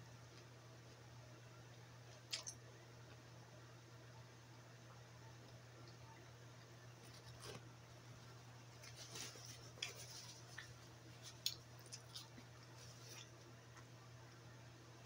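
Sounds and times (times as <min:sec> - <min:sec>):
low steady hum: 0:00.0 - 0:15.0
paper napkin crinkling: 0:07.0 - 0:07.7, 0:08.7 - 0:13.5.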